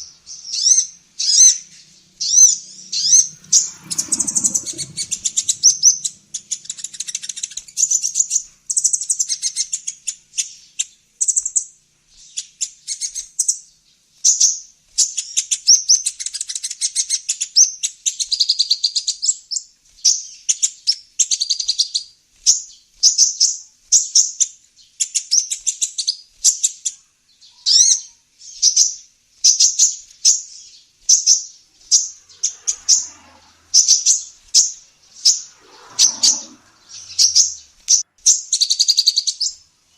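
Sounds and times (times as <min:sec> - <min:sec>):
bird trilled chirping: 0:00.0 - 0:08.4, 0:30.3 - 0:39.6
bird sharp chirps: 0:00.0 - 0:09.8, 0:30.3 - 0:39.6.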